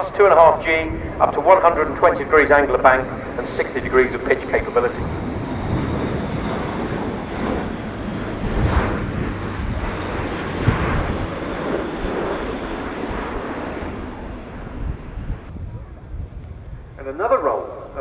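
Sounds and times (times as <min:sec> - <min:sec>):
turboprop aircraft flying past: 0:00.0 - 0:18.0.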